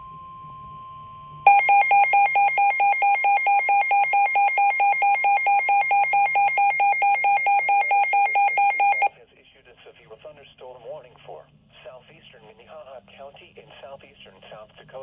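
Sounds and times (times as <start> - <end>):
faint steady warning tone: 0.0 - 9.1
warbling electronic alarm pulses: 1.5 - 9.1.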